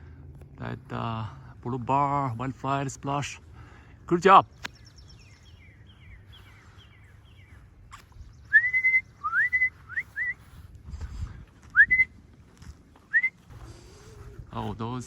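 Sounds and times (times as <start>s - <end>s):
person whistling: 8.5s - 10.4s, 11.8s - 12.1s, 13.1s - 13.4s.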